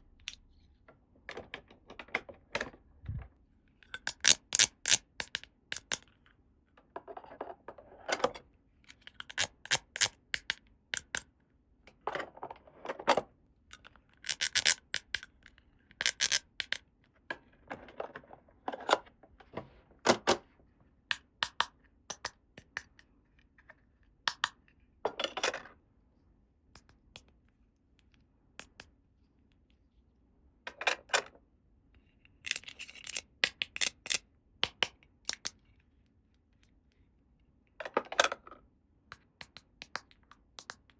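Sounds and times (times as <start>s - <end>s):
plastic toy pieces clicking: 3.9s - 6.1s, 9.0s - 11.2s, 13.7s - 15.3s, 16.0s - 16.8s, 32.4s - 35.5s.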